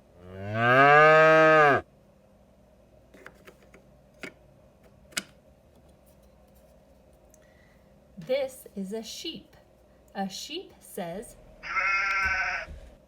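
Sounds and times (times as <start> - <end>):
cow mooing: 0.2 - 1.8, 11.6 - 12.7.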